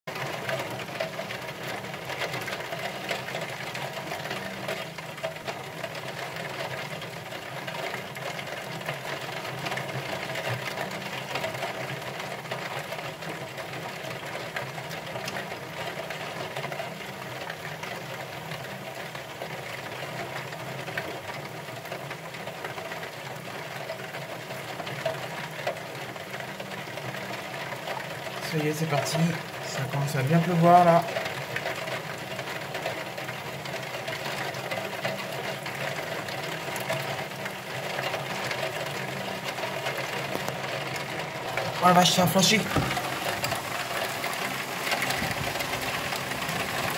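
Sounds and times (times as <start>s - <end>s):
rain pattering on window: 0.1s - 46.9s.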